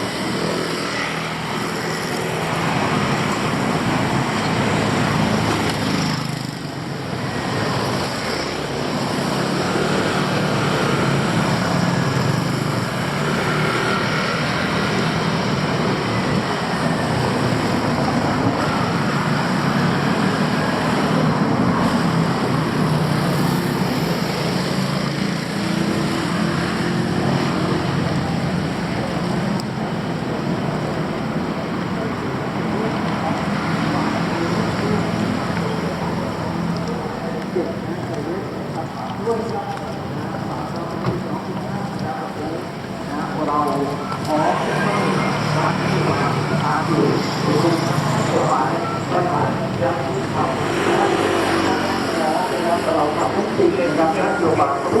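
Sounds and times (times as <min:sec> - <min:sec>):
street traffic passing: 0:00.0 - 0:55.0.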